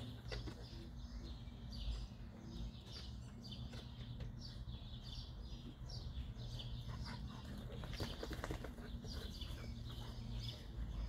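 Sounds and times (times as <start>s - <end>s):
songbird chirping: 0.0s - 11.0s
dogs play-wrestling clicks and scuffles: 6.9s - 10.7s.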